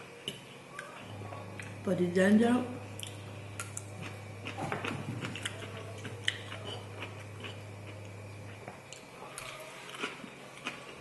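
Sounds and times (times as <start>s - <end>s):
steady low hum: 0.0s - 11.0s
person chewing food: 3.0s - 11.0s.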